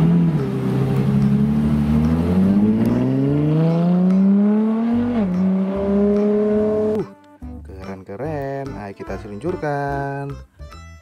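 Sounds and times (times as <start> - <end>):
car engine accelerating: 0.0 - 7.1.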